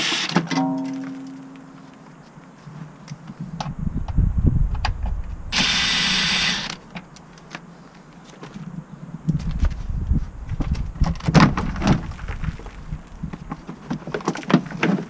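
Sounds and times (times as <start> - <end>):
steady hiss: 5.5 - 10.4
low knocks and thumps: 9.3 - 13.7.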